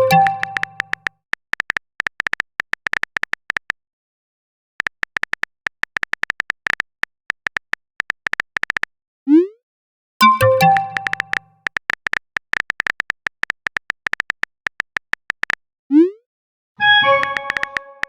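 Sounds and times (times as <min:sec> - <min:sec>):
phone keyboard typing clicks: 0:00.0 - 0:03.8, 0:04.8 - 0:08.9, 0:10.2 - 0:15.6, 0:17.0 - 0:18.0.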